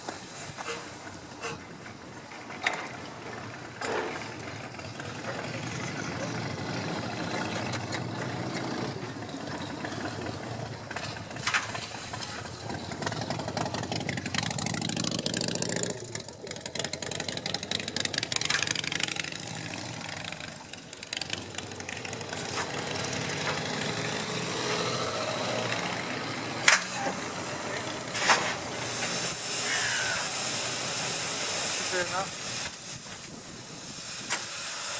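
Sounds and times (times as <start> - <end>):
hissing steam: 0.0 - 2.5, 18.0 - 34.9
steam locomotive running: 0.0 - 34.9.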